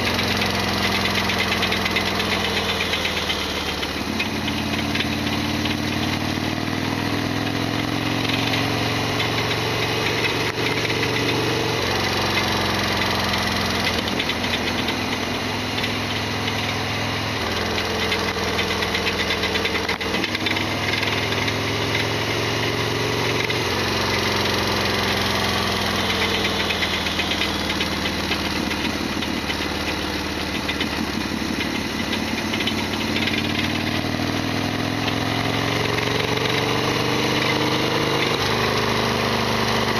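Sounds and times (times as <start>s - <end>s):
loud mechanical rattling: 0.0s - 7.3s, 8.1s - 21.6s, 23.3s - 38.8s
motorcycle engine running: 0.0s - 39.9s.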